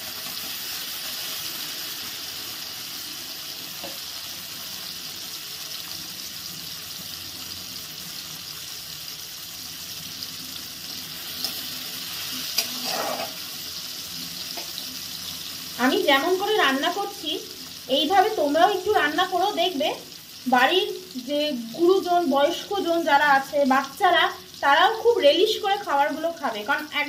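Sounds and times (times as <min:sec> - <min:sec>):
food sizzling in oil: 0:00.0 - 0:27.0
spatula scraping a pan: 0:11.2 - 0:13.7.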